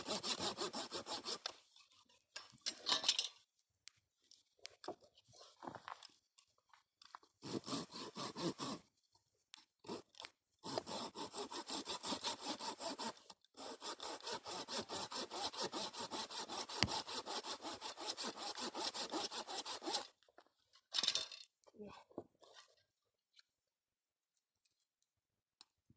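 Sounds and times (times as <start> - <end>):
hand saw cutting wood: 0.0 - 2.2, 7.4 - 8.9, 9.8 - 20.2.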